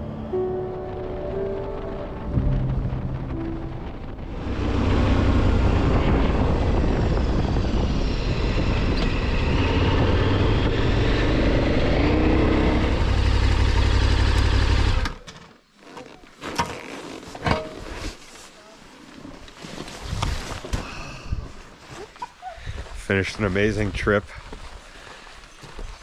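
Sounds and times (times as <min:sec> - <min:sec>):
rushing wind noise: 0:00.0 - 0:13.9
motorcycle engine drone: 0:00.0 - 0:15.3.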